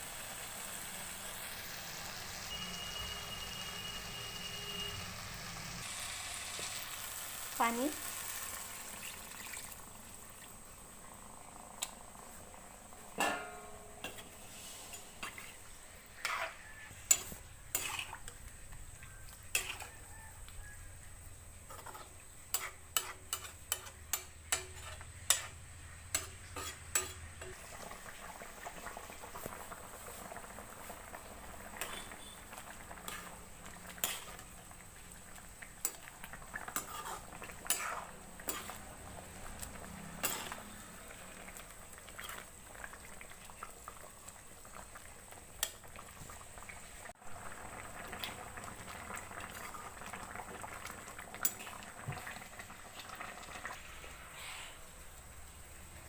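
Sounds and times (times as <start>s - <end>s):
curry simmering: 0.0s - 56.0s
metal ladle clinking against pot: 13.2s - 14.3s.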